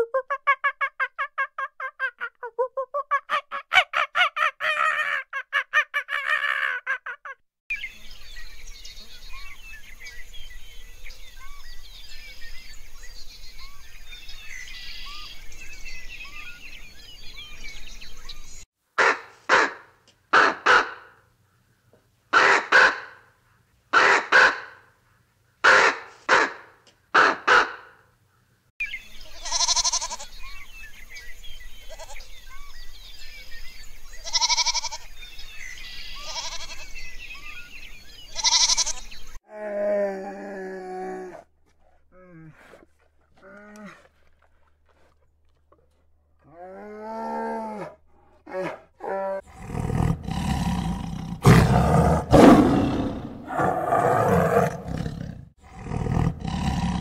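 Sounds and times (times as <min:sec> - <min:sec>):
soft bird chirps: 0:07.7 - 0:18.6.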